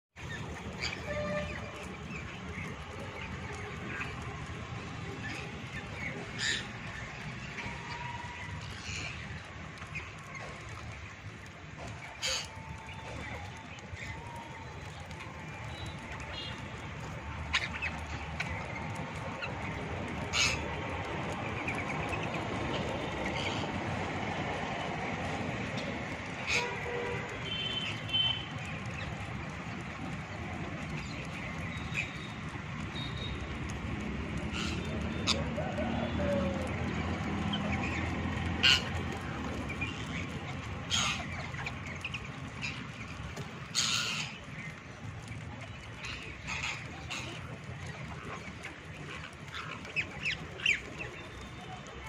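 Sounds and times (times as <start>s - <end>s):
parrots calling loudly: 20.2s - 20.6s, 34.4s - 36.6s, 38.6s - 39.1s, 39.8s - 44.4s, 46.0s - 48.4s.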